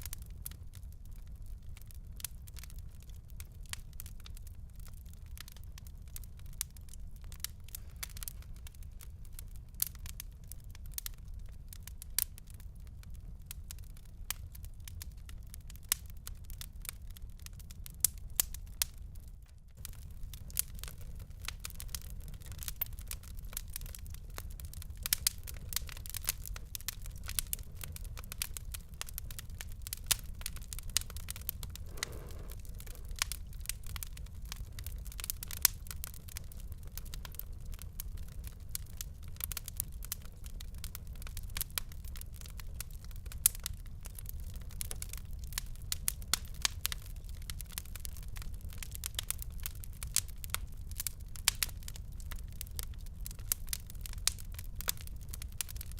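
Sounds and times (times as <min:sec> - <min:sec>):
fire crackling and popping: 0:00.0 - 0:55.9
low steady rumble: 0:19.8 - 0:35.3.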